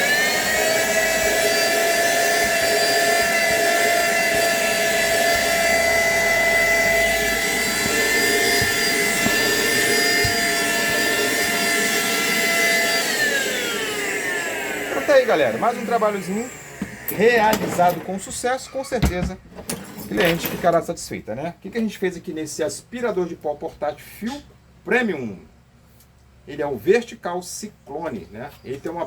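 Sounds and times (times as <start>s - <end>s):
vacuum cleaner motor whine: 0.0s - 18.1s.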